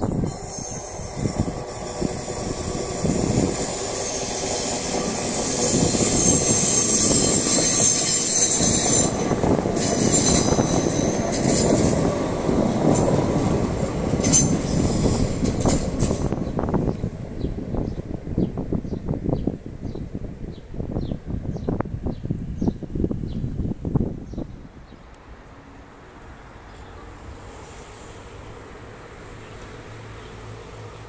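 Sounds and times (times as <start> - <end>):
train wheels rumbling on rail: 0.0 - 31.0
high-pitched wheel squeal: 0.1 - 11.9.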